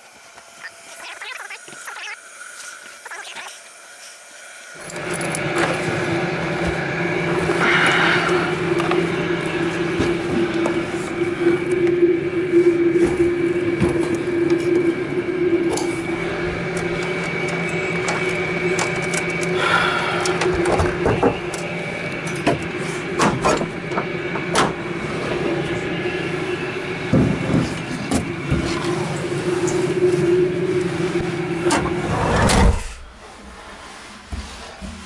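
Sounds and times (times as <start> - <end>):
steady machine hum: 0.0 - 34.4.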